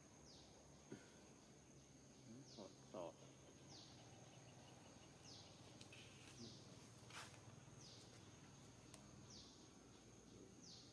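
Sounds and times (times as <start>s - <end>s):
insect drone: 0.0s - 10.9s
soft rustle: 5.8s - 9.1s.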